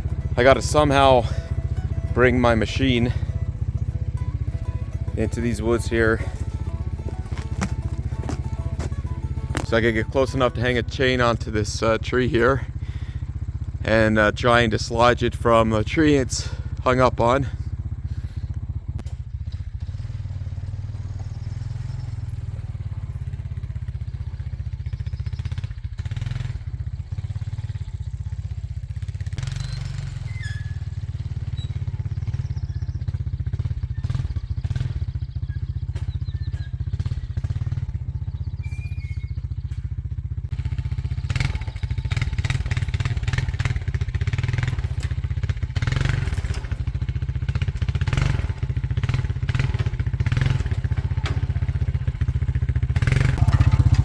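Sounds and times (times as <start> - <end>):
atv engine running: 0.0 - 54.0
knocks and clatter: 3.2 - 10.6, 29.4 - 38.1, 38.7 - 54.0.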